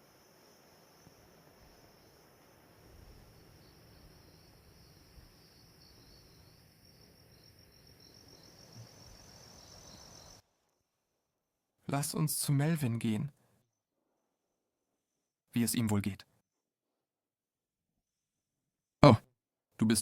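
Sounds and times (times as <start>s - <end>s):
high-pitched insect trill: 0.0s - 10.4s
background hiss: 0.0s - 11.0s.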